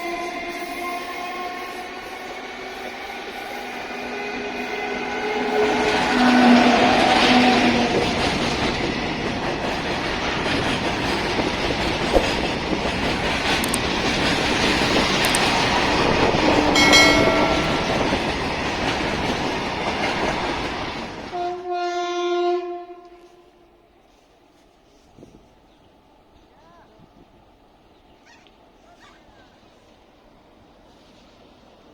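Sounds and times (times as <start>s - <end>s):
train horn: 0.0s - 8.2s, 16.4s - 18.3s, 21.3s - 24.2s
train wheels rumbling and clattering: 0.0s - 21.6s.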